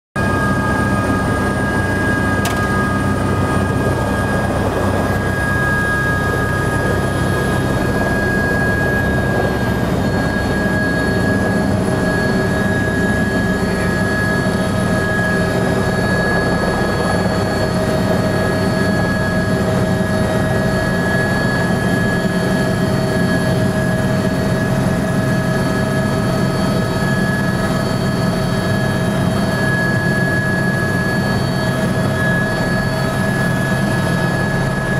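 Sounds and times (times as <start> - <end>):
helicopter engine and rotors: 0.2 - 34.9
sharp click: 2.4 - 2.8.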